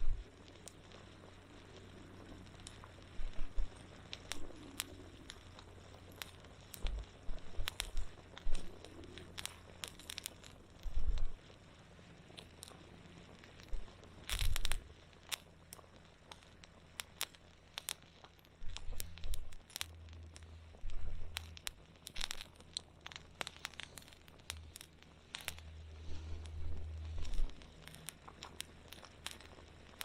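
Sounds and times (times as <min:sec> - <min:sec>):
low rumble: 0:00.0 - 0:11.6, 0:18.6 - 0:22.5, 0:23.7 - 0:29.8
campfire crackling: 0:00.0 - 0:30.0.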